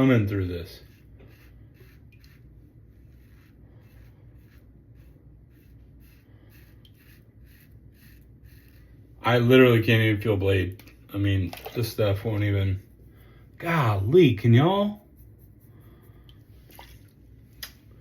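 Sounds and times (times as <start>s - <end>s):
razor scraping stubble: 0.0s - 9.7s.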